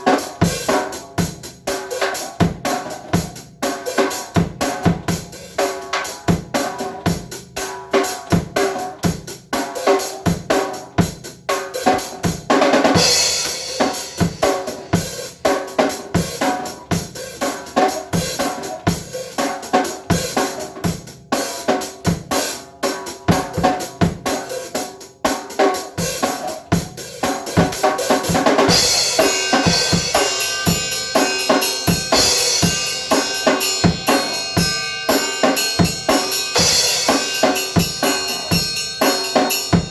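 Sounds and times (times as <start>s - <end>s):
drum kit playing: 0.0s - 39.9s
cymbal crash: 28.7s - 39.8s
cymbal ringing: 28.7s - 39.9s.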